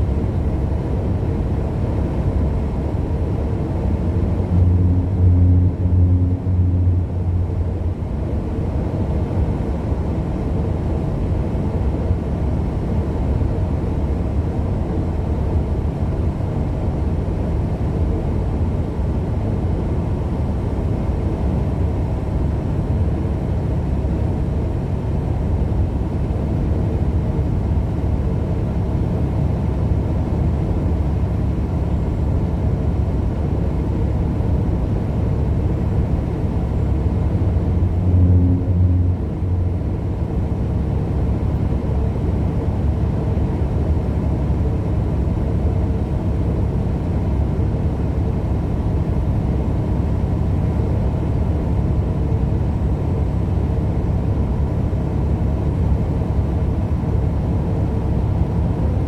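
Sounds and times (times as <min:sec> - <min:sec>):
truck engine and road drone: 0:00.0 - 0:59.0
pulsing low hum: 0:04.0 - 0:10.0, 0:34.4 - 0:45.3.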